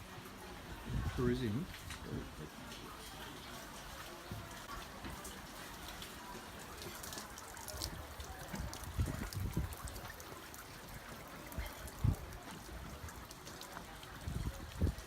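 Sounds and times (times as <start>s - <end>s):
water washing along a hull: 0.0s - 15.0s.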